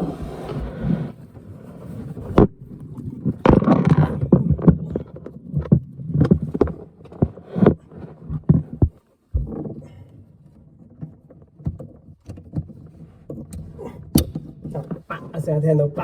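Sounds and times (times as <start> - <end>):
hose connector knocks and clicks: 13.4 - 14.9.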